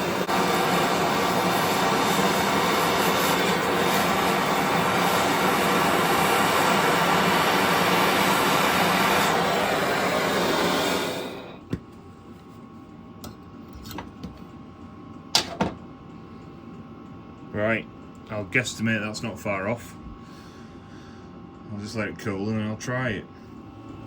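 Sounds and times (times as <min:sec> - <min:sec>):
gas torch roaring: 0:00.0 - 0:11.8.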